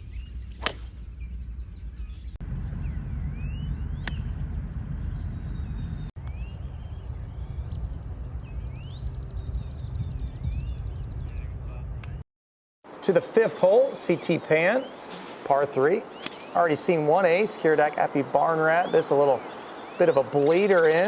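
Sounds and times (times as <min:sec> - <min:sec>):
birds chirping: 0:00.0 - 0:12.1, 0:12.9 - 0:21.0
golf club striking ball: 0:00.6 - 0:01.1, 0:16.2 - 0:16.6.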